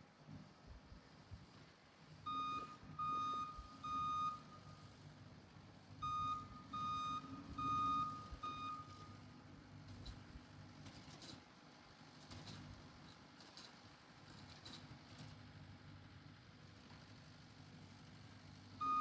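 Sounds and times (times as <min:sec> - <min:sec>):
engine hum: 0:00.0 - 0:19.0
backup alarm beeping: 0:02.3 - 0:04.8, 0:06.0 - 0:09.2.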